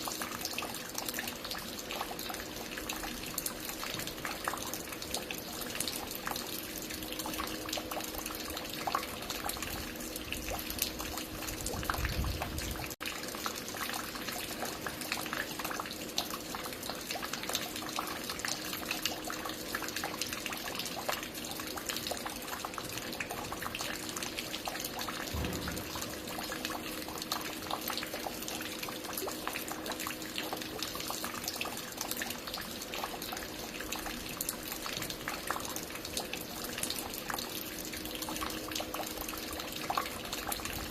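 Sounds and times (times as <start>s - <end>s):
water falling and dripping: 0.0s - 40.9s
low thuds: 25.4s - 26.2s.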